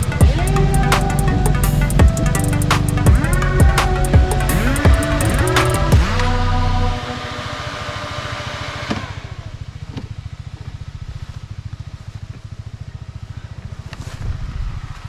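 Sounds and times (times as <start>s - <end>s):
motorcycle engine idling: 0.0s - 7.0s, 9.1s - 13.9s
background music: 0.0s - 8.6s.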